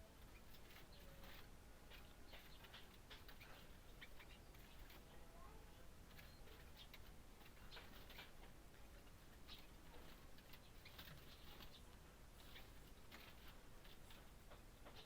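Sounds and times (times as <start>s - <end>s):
low steady hum: 0.0s - 15.0s
small bird ticks and chirps: 0.0s - 15.0s.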